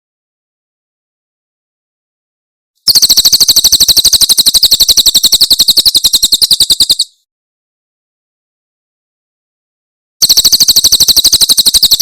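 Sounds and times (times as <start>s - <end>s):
bird rattling song: 2.9s - 7.2s, 10.2s - 12.0s.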